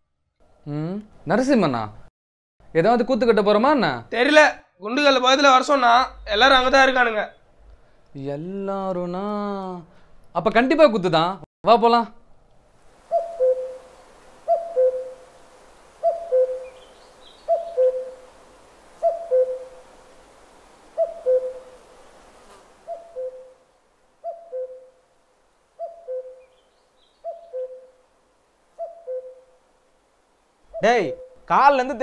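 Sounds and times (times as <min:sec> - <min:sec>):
bird's two-note hooting call: 0:13.1 - 0:13.9, 0:14.5 - 0:15.2, 0:16.0 - 0:16.8, 0:19.0 - 0:19.8, 0:24.2 - 0:24.9, 0:25.8 - 0:26.5, 0:27.2 - 0:27.9, 0:28.8 - 0:29.4
faint high bird chirp: 0:13.1 - 0:15.2, 0:16.0 - 0:18.2, 0:19.0 - 0:19.8, 0:21.0 - 0:21.7, 0:22.9 - 0:23.6, 0:24.2 - 0:25.0, 0:25.8 - 0:28.0, 0:28.8 - 0:29.5, 0:30.7 - 0:31.5.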